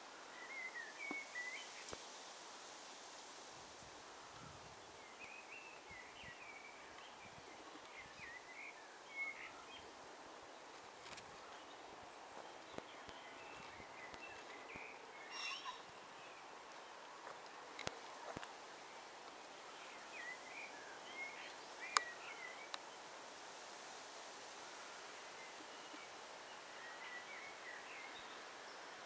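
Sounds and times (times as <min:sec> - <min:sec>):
small birds chirping: 0:00.3 - 0:02.0, 0:04.3 - 0:23.2.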